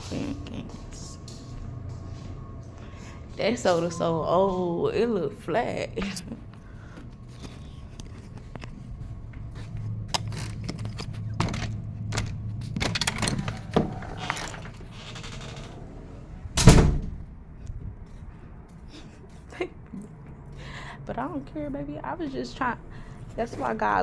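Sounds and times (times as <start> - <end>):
low steady hum: 0.0 - 24.0
loud thump: 16.6 - 17.3.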